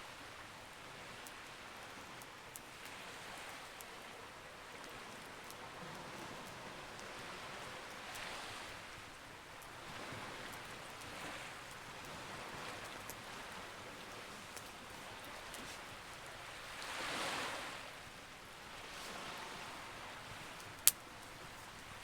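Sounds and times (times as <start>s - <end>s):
sea waves: 0.0s - 22.0s
campfire crackling and popping: 9.1s - 16.3s, 20.4s - 22.0s.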